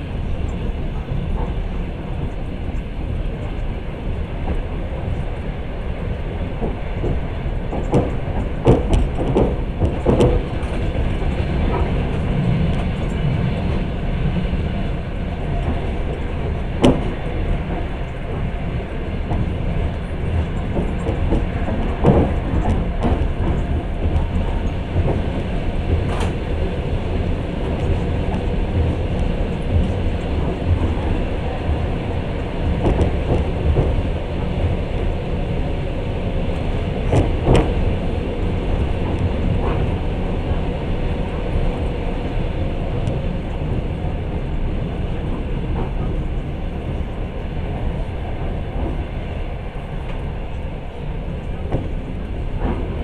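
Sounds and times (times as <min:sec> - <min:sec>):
train wheels rumbling on rail: 0:00.0 - 0:53.0
sharp clicks and knocks: 0:06.6 - 0:10.8.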